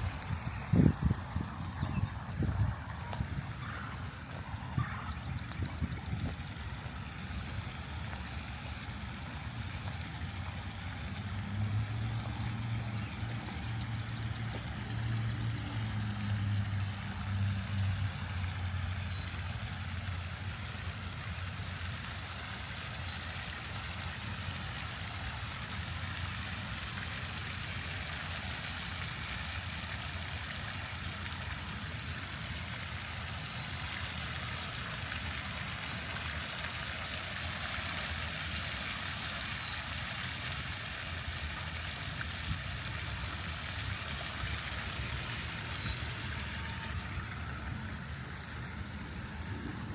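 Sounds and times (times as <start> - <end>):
steady rushing noise: 0.0 - 17.9, 42.5 - 49.9
vehicle engine hum passing: 0.0 - 49.9.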